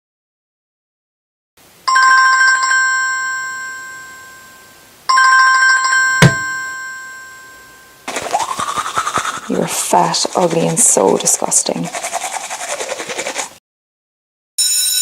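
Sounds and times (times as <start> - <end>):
metal bell ringing: 1.9 - 8.0
sharp knock: 6.2 - 6.6.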